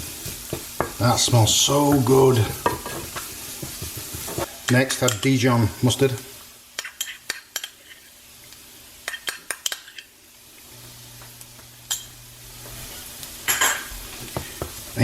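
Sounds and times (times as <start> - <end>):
stirring and scraping in pan: 0.0 - 1.0, 1.8 - 5.4, 6.0 - 10.7, 11.3 - 15.0
onions frying in oil: 0.0 - 15.0
metal spoon tapping jar and pan: 4.7 - 5.3, 9.1 - 10.0.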